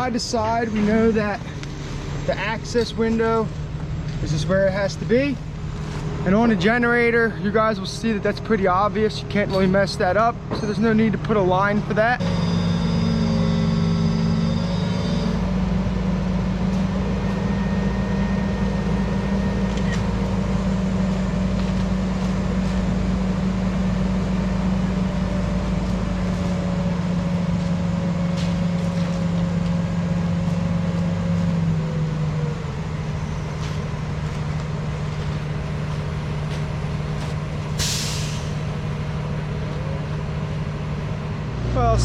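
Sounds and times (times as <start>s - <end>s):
diesel engine running: 0.0s - 42.0s
air hiss: 37.8s - 38.6s.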